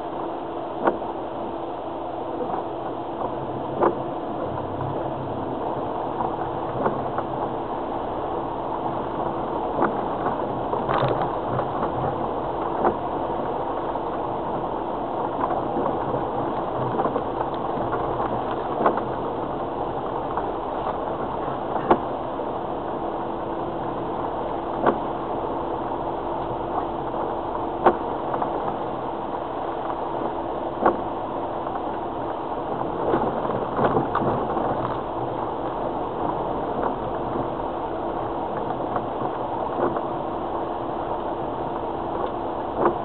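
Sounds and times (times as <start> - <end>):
car engine and cabin noise: 0.0 - 43.0
car knocking over bumps: 15.4 - 22.2, 41.2 - 43.0.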